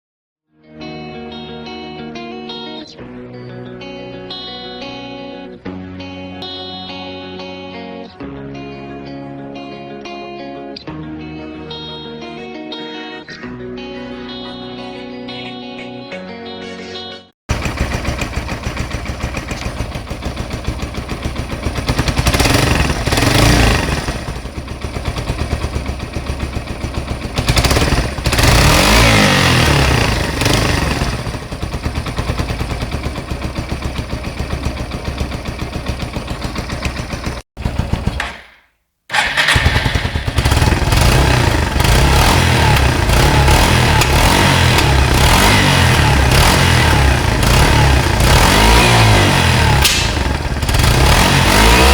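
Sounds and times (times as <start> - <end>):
motorcycle engine revving: 17.5 - 51.9.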